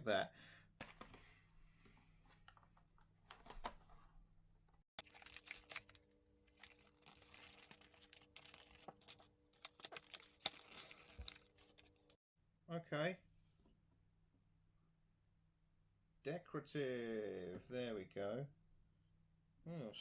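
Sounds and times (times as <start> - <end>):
cardboard box crinkling: 5.0 - 12.2.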